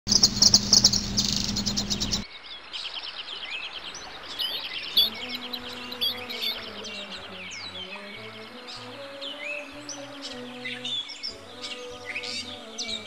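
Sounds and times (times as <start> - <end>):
birds chirping and singing: 0.1 - 13.0.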